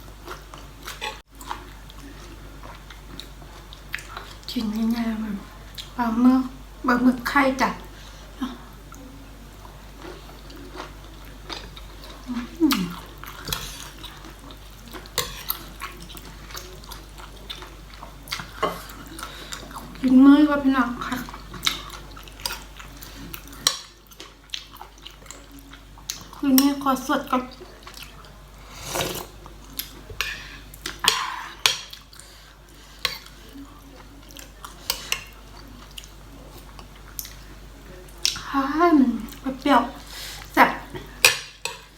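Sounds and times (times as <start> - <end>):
person chewing wetly: 0.0 - 4.5, 5.7 - 6.0, 9.6 - 20.1, 21.0 - 26.4, 27.5 - 37.5
utensil scraping dish: 28.6 - 29.4.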